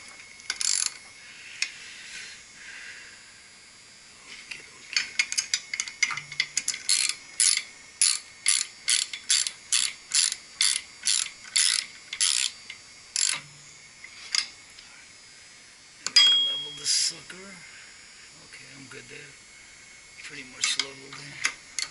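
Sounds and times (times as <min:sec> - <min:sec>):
ratchet wrench clicking: 0:00.4 - 0:01.0, 0:05.0 - 0:13.4, 0:20.6 - 0:21.9.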